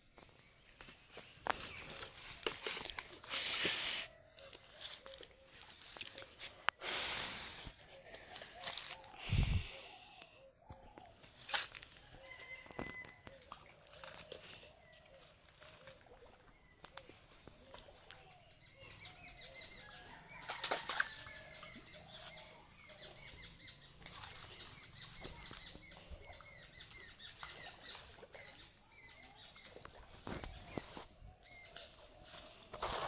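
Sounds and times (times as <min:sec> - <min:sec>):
small birds chirping: 0:00.1 - 0:11.5, 0:21.6 - 0:32.8.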